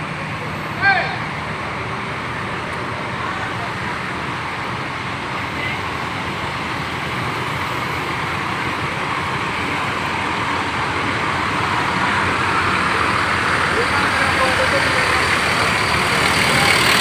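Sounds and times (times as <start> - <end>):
diesel bus engine running: 0.0 - 17.0
traffic noise: 0.0 - 17.0.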